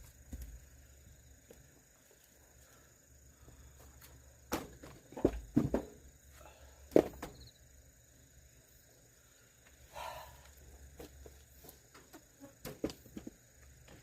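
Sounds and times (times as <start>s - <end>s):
firewood knocks and thuds: 4.5s - 6.0s, 6.9s - 7.5s, 11.9s - 14.0s.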